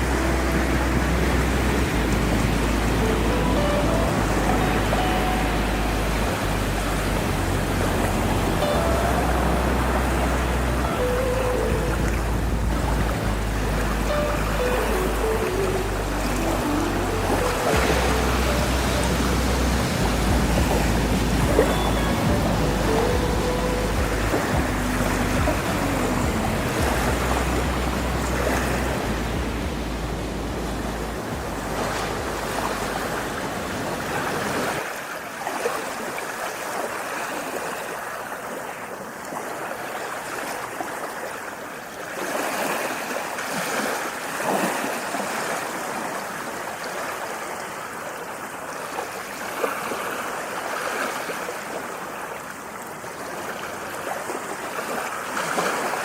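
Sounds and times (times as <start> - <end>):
low rumble: 0.0 - 34.0
ocean waves washing in: 0.0 - 56.0.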